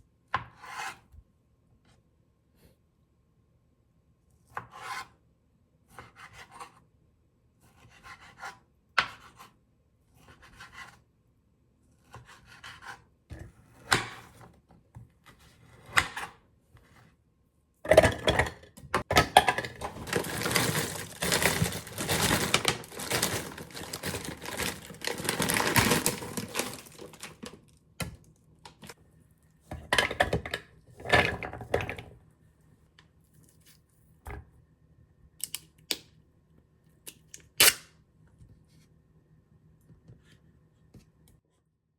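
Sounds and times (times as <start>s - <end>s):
scraping and rubbing: 19.8s - 27.5s
rustling: 19.8s - 27.6s.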